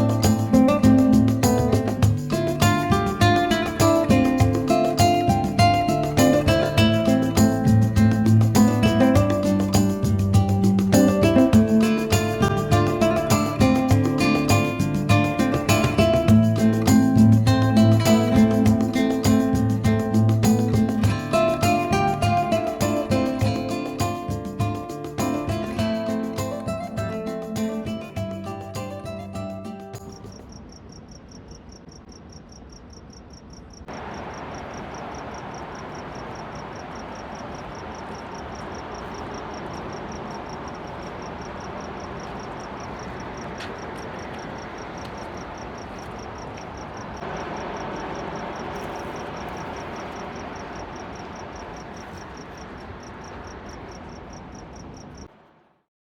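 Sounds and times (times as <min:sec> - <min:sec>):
steady rushing noise: 0:00.0 - 0:29.2
insects chirping: 0:00.0 - 0:55.6.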